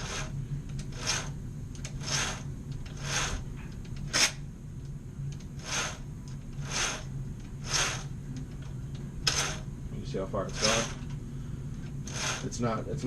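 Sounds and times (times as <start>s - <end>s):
chainsaw chain rasping whirr: 0.0s - 0.3s, 0.9s - 3.4s, 5.6s - 6.0s, 6.6s - 8.1s, 9.3s - 9.6s, 10.5s - 11.0s, 12.0s - 12.6s
low hum: 0.0s - 13.0s.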